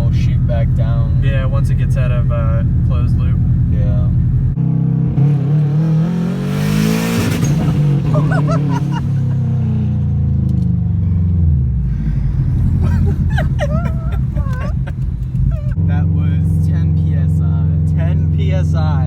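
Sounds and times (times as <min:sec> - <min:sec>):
turbocharged car engine revving: 0:00.0 - 0:10.3, 0:11.6 - 0:16.0.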